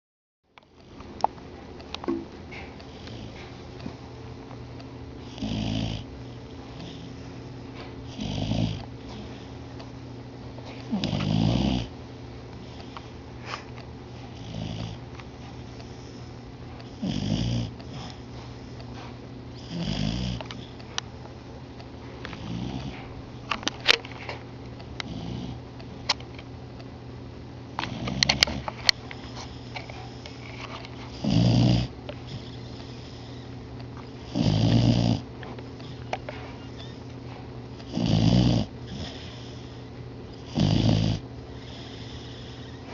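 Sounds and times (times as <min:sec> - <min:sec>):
dog snoring: 0:02.5 - 0:03.9, 0:05.2 - 0:10.0, 0:10.7 - 0:12.0, 0:12.6 - 0:20.9, 0:22.3 - 0:23.1, 0:25.0 - 0:25.6, 0:27.8 - 0:42.9.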